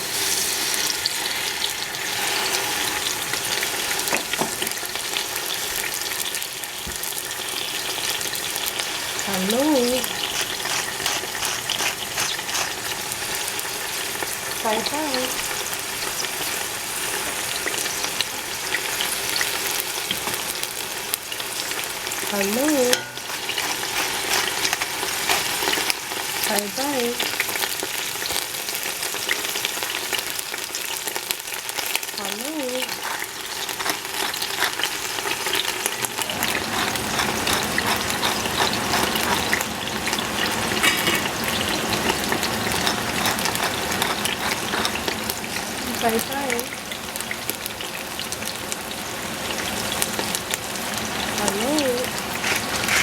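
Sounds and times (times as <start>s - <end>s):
food sizzling in hot oil: 0.0s - 53.0s
spatula clicking and scraping: 9.4s - 15.4s, 22.4s - 27.4s, 32.2s - 46.3s, 52.2s - 53.0s.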